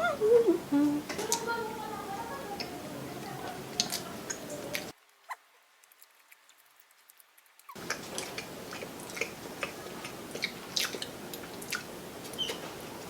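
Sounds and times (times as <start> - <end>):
close chewing with mouth smacks: 3.4 - 4.9, 5.8 - 12.7.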